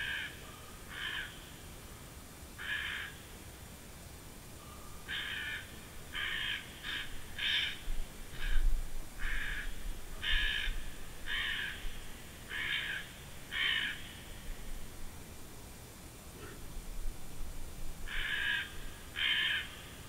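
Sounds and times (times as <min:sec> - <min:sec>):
bird cawing harshly: 0:00.0 - 0:00.3, 0:00.9 - 0:01.4, 0:02.6 - 0:03.2, 0:05.1 - 0:08.6, 0:09.2 - 0:11.8, 0:12.5 - 0:14.2, 0:18.1 - 0:20.0.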